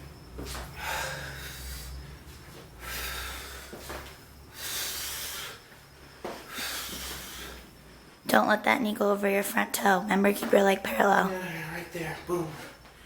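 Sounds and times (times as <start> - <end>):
faint low hum: 0.0 - 13.0
man breathing hard: 0.5 - 7.9.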